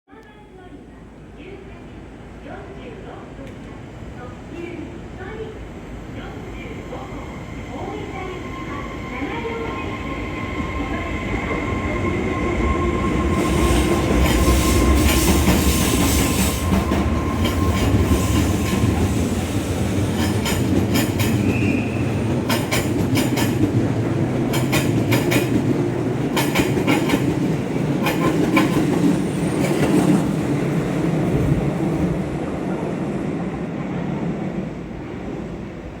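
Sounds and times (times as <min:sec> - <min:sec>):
electric train running: 0:08.5 - 0:31.8
train wheels clicking over rail joints: 0:13.5 - 0:30.2.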